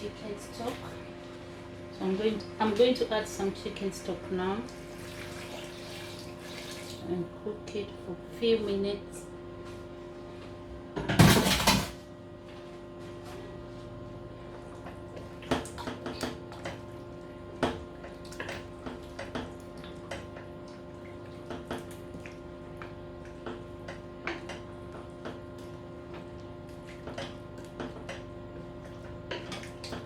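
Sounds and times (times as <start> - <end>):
curry bubbling and popping: 14.5 - 30.0.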